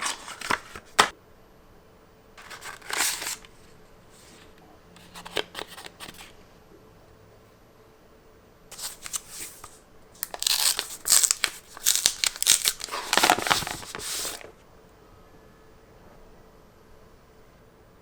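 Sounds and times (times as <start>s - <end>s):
packaging tearing and crinkling: 0.0s - 1.1s, 2.4s - 3.5s, 8.7s - 14.5s.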